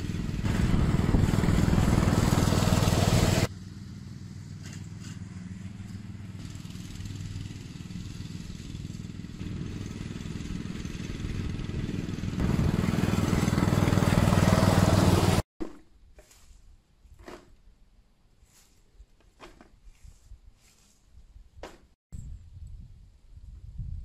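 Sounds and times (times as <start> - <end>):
small engine running: 0.0 - 15.4.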